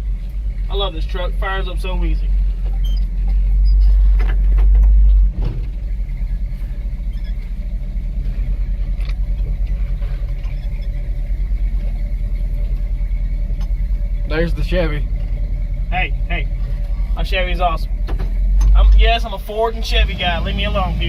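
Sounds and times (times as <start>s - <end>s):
heavy low rumble: 0.0s - 21.0s
truck engine pulsing rumble: 0.0s - 21.0s.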